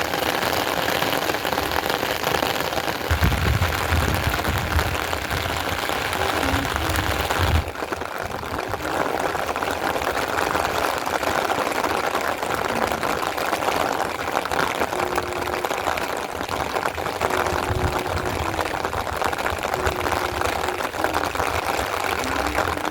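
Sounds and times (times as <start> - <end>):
rain pattering: 0.0 - 22.9
low rumble: 3.1 - 7.7.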